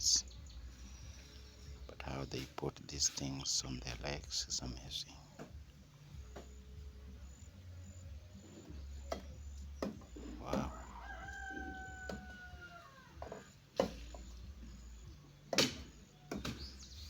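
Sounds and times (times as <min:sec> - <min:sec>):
sharp knocks and clicks: 0:09.0 - 0:10.7, 0:15.5 - 0:16.8.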